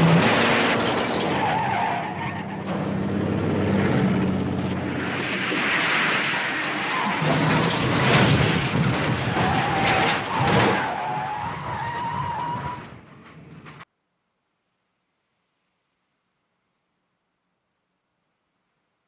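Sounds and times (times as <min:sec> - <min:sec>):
car engine running hard: 0:00.0 - 0:01.6, 0:02.2 - 0:05.5
tyres skidding and squealing: 0:00.0 - 0:13.8.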